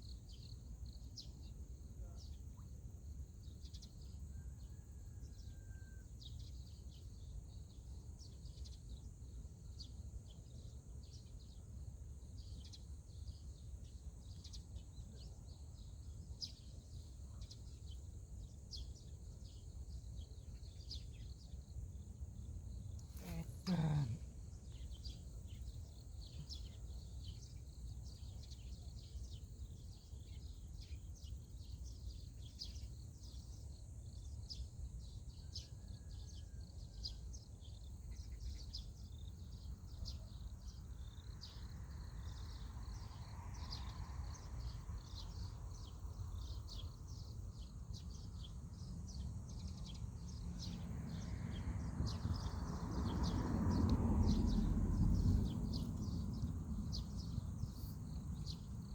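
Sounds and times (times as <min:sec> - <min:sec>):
steady low rumble: 0:54.2 - 0:58.9.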